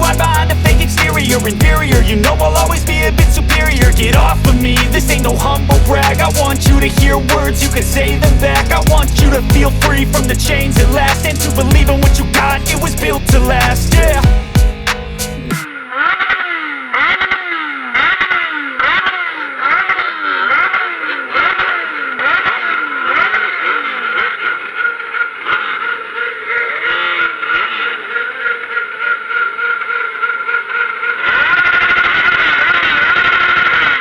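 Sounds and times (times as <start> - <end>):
motorcycle engine revving: 0.0 - 15.6, 18.0 - 26.3.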